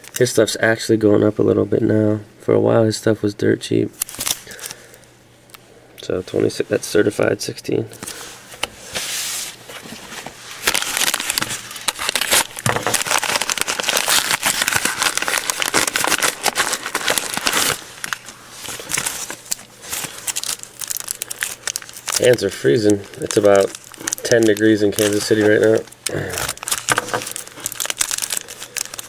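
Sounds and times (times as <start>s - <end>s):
paper and plastic crinkling: 4.0s - 4.9s, 8.0s - 29.0s.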